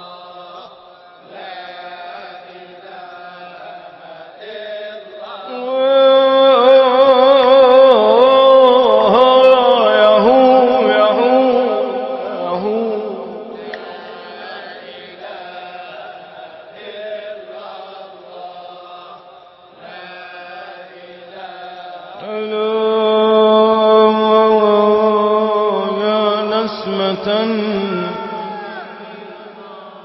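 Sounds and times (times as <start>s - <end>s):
quieter chanting and accompaniment: 0.0s - 30.0s
man singing melismatic chant: 4.4s - 15.9s, 20.0s - 30.0s.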